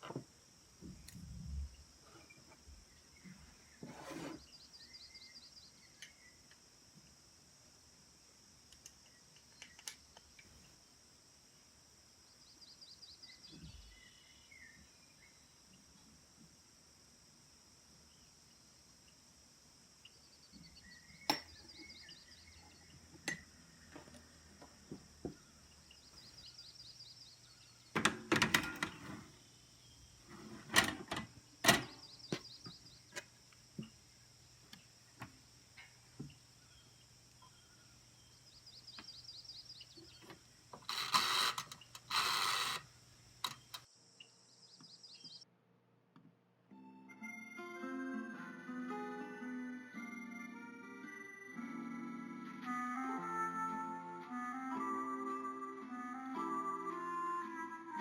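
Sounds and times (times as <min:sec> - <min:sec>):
insects chirping: 0:00.0 - 0:45.4
insect trill: 0:00.2 - 0:45.4
clicks: 0:40.2 - 0:43.9.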